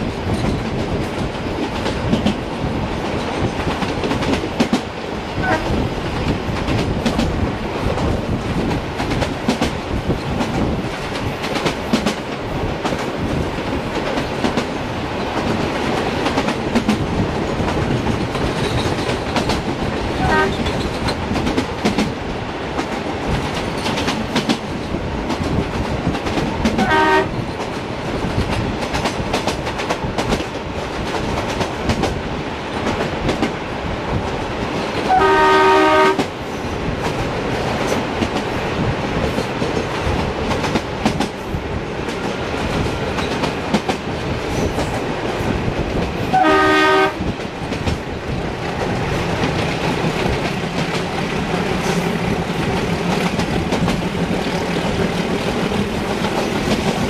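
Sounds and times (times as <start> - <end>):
train wheels clattering over rail joints: 0.0 - 35.2, 35.9 - 57.0
multi-tone locomotive horn: 5.4 - 5.8, 20.2 - 20.7, 26.8 - 27.4, 35.0 - 36.3, 46.3 - 47.2.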